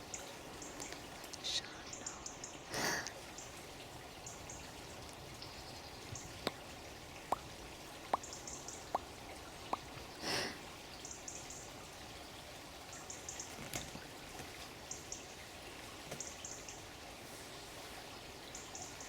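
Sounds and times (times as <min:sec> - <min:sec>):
water drops dripping: 0:00.0 - 0:12.2
background hiss: 0:00.0 - 0:19.0.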